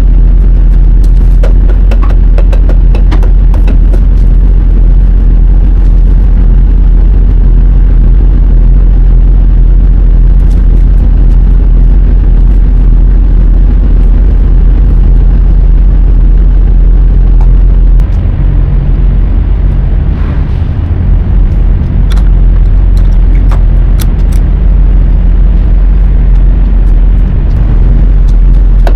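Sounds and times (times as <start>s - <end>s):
truck diesel engine drone: 0.0s - 28.9s.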